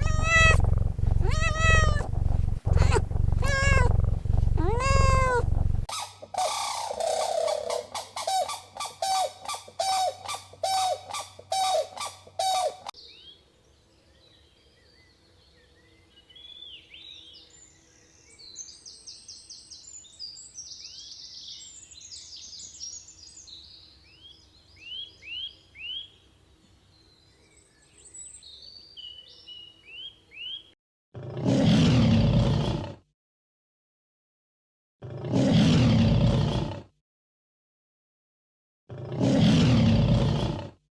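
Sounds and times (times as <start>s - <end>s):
repeated animal calls: 0.0s - 5.9s
small birds chirping: 0.0s - 5.9s.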